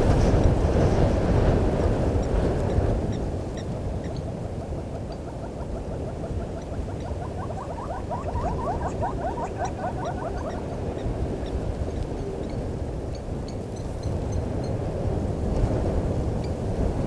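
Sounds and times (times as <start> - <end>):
animal calling in rising notes: 5.2 - 11.0.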